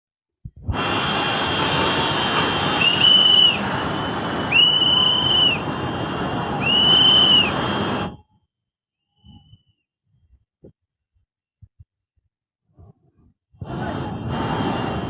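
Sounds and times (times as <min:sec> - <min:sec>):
shrill whistle blasts: 0:02.0 - 0:05.7, 0:06.6 - 0:08.4, 0:09.0 - 0:09.9.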